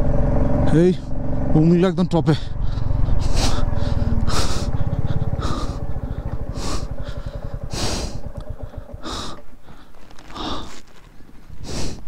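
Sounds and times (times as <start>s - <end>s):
motorcycle engine running: 0.0s - 11.7s
person breathing hard: 2.5s - 12.0s.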